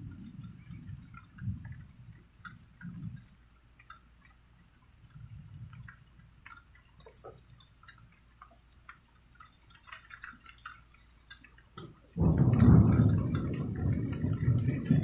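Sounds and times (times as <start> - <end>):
raindrops and water drips: 0.0 - 15.0.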